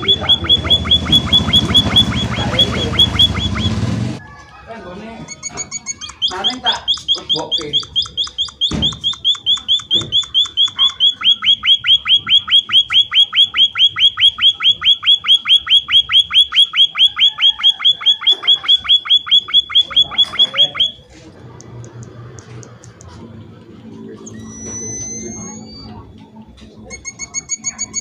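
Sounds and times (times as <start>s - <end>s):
bird calling sharp falling notes: 0.0s - 4.3s, 5.3s - 21.0s.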